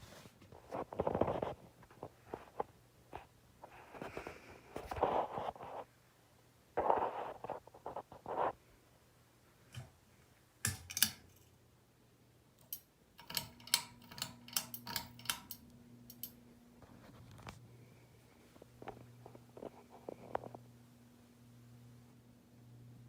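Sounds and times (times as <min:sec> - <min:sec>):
ceiling fan motor humming: 0:09.4 - 0:23.0
sharp clicks and ticks: 0:12.6 - 0:16.4.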